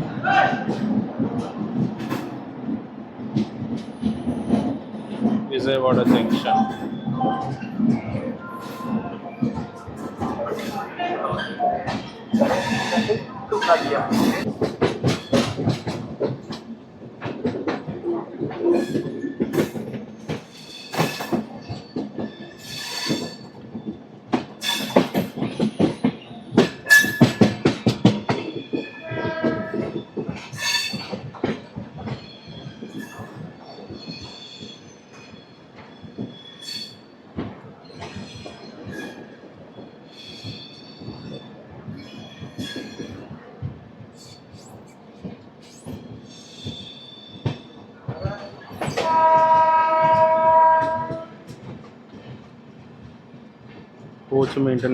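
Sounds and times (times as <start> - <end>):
train wheels clacking over rail joints: 0.0 - 54.9.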